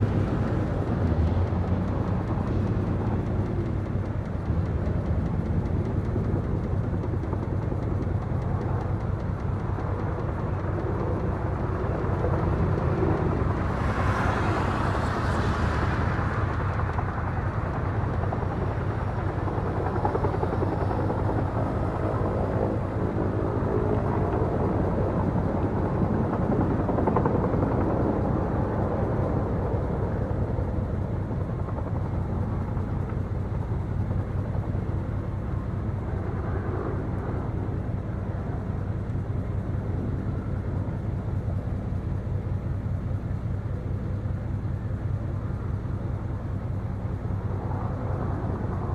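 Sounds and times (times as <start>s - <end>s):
helicopter rotors beating: 0.0s - 48.9s.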